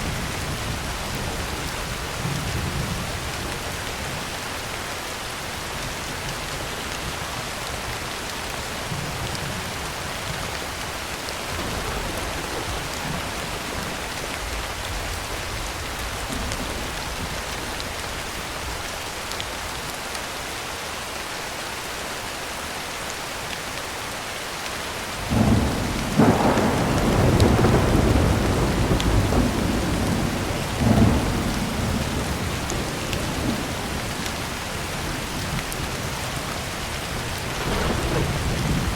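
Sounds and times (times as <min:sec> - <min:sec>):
heavy rain on a tin roof: 0:00.0 - 0:38.9
thunder clap and rumble: 0:11.2 - 0:18.7, 0:25.1 - 0:38.9.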